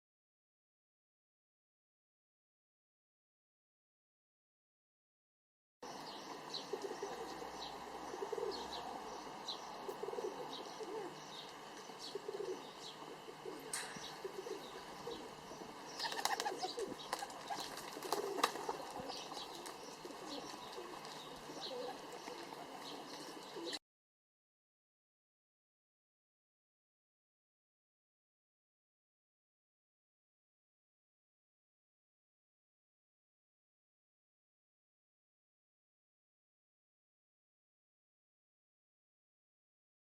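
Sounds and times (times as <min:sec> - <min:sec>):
small birds chirping: 0:05.8 - 0:23.8
low cooing calls: 0:05.9 - 0:23.8
wings fluttering: 0:13.4 - 0:23.8.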